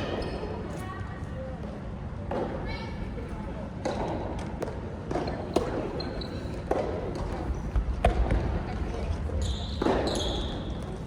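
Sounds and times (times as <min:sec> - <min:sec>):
shoe squeal: 0:05.9 - 0:06.6, 0:09.3 - 0:11.0.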